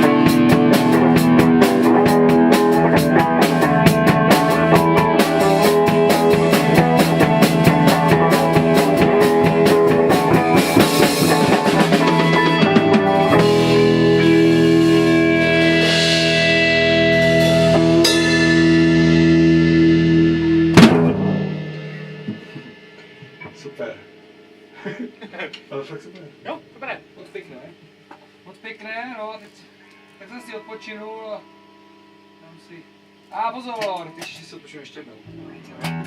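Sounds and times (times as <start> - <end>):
fast drumming: 0.0 - 16.7, 20.4 - 24.0
rock band playing live: 0.0 - 23.5, 35.6 - 36.0
electric guitar chords: 0.0 - 25.4, 29.7 - 36.0.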